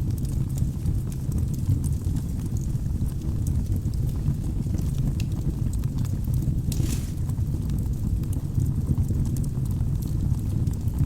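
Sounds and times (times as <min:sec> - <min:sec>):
fire crackles: 0:06.4 - 0:08.9
fire flames rumbling: 0:06.4 - 0:09.0.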